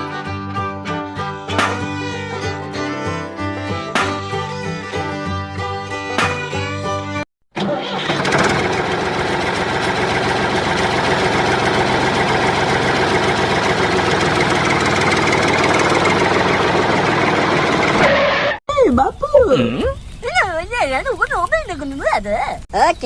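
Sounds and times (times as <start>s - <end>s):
small engine running: 7.6s - 18.5s.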